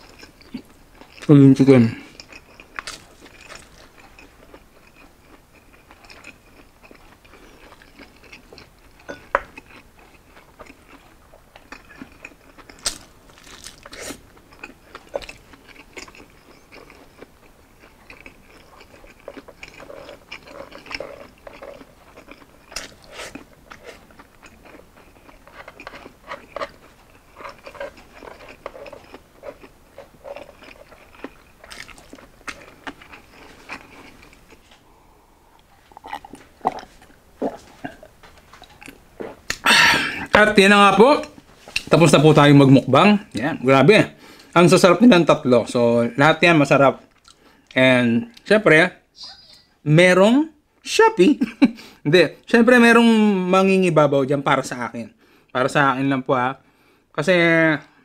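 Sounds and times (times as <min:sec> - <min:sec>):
crispy pork skin crunching: 0:00.0 - 0:34.8
chewing: 0:00.0 - 0:40.3, 0:47.0 - 0:48.5.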